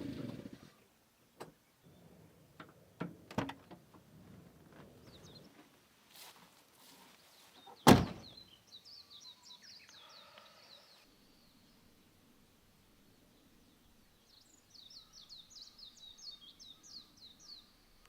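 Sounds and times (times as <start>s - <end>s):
bird chirping: 4.9s - 5.7s, 7.1s - 18.0s
door shutting heavily: 7.9s - 8.3s.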